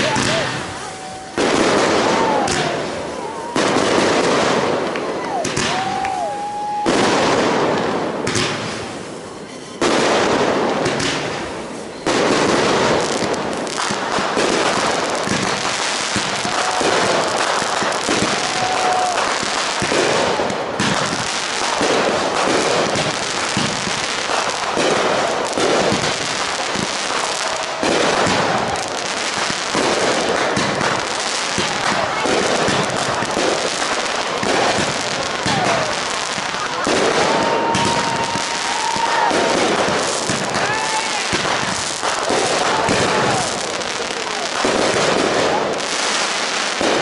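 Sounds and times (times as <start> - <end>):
fireworks crackling and popping: 0.0 - 47.0
loud firework bangs: 0.0 - 47.0.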